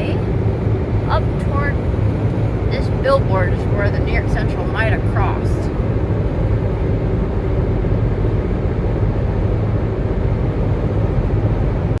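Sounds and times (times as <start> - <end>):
car road rumble: 0.0 - 12.0
constant low hum: 0.0 - 12.0.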